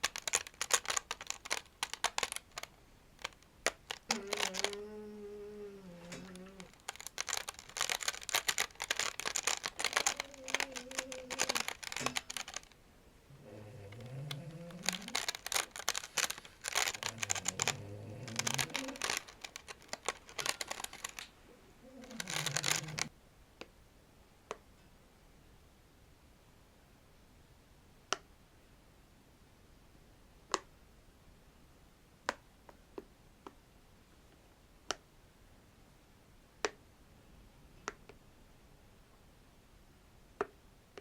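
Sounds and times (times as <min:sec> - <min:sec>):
fingers scratching a toy plate: 0:00.0 - 0:05.0, 0:05.9 - 0:12.8, 0:13.4 - 0:21.2, 0:21.9 - 0:23.1.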